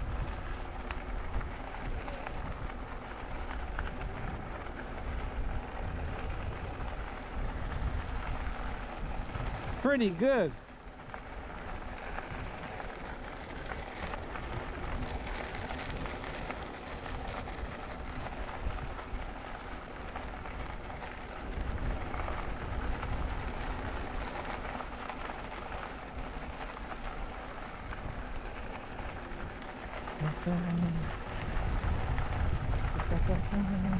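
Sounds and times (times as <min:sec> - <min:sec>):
bicycle tyres rolling on trail: 0:00.0 - 0:33.9
wind buffeting microphone: 0:00.0 - 0:33.9
low rumble: 0:30.1 - 0:33.9.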